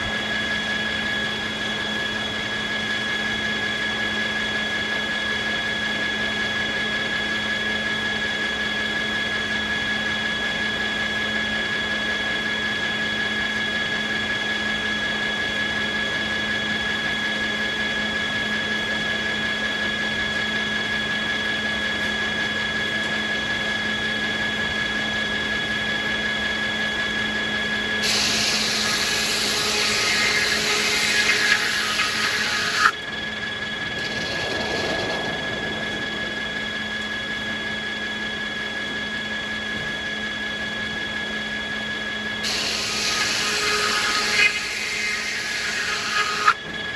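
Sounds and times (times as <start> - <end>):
sawmill machinery whine: 0.0 - 46.9
rushing hissing noise: 33.6 - 38.2.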